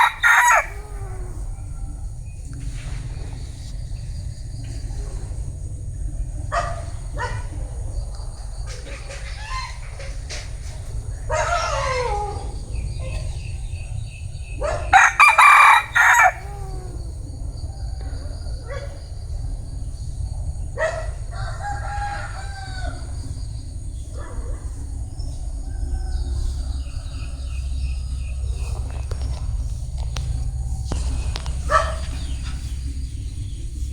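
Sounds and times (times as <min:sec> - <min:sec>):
rooster crowing and clucking: 0:00.0 - 0:02.1, 0:08.8 - 0:18.8, 0:20.8 - 0:23.6, 0:24.4 - 0:33.9
steady low rumble: 0:00.0 - 0:33.9.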